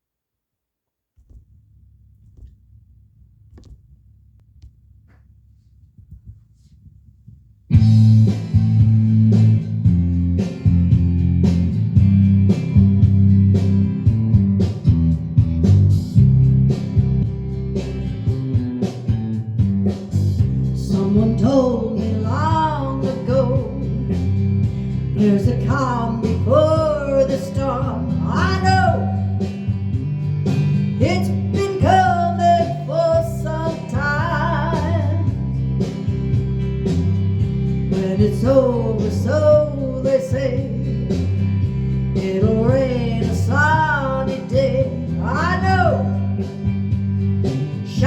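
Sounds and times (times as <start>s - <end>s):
low bass line: 1.2s - 48.0s
guitar accompaniment: 7.7s - 48.0s
person singing: 31.0s - 35.3s.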